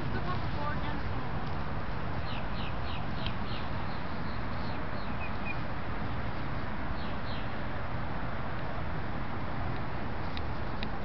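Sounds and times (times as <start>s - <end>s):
rushing background noise: 0.0s - 11.0s
bird chirping: 2.2s - 7.6s.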